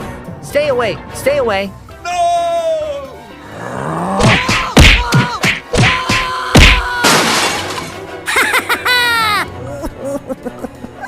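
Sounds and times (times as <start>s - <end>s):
background music: 0.0s - 11.0s
cartoon thumps and whacks: 4.2s - 7.2s
glass shattering: 6.6s - 8.1s.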